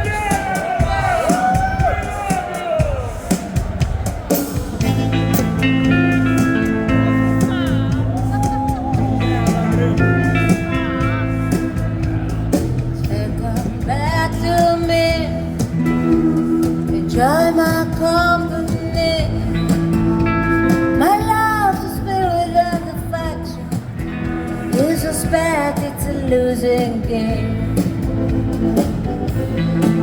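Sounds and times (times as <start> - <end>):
rockabilly band playing: 0.0 - 30.0
person singing: 13.0 - 19.7.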